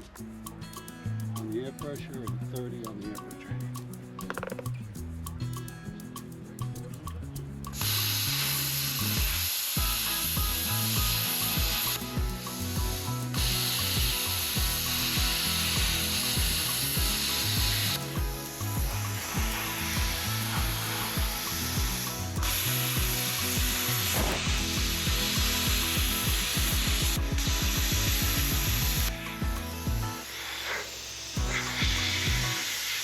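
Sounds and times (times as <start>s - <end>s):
background music with steady beat: 0.0s - 33.0s
plasma cutter arc hissing: 7.8s - 33.0s.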